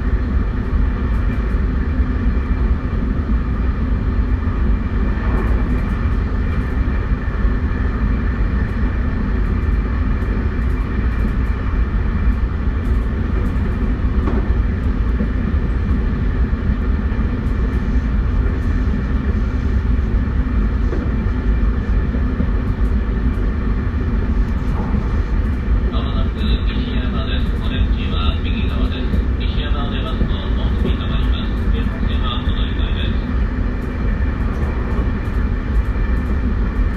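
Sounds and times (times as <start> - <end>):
train inverter whine: 0.0 - 36.9
train wheels rumbling on rails: 0.0 - 36.9.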